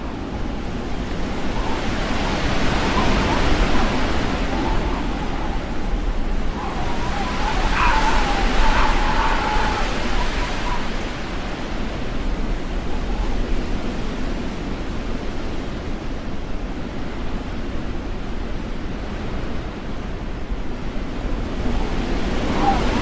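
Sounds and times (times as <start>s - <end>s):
faint high squeal: 0.0s - 11.8s
strong storm wind blowing: 0.0s - 15.8s, 18.4s - 23.0s
gusts buffeting microphone: 0.0s - 23.0s.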